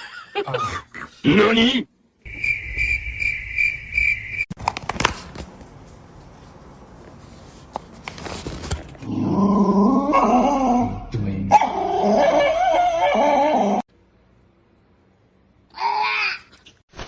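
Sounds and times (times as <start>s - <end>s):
dog crying: 10.0s - 13.8s, 15.7s - 16.6s.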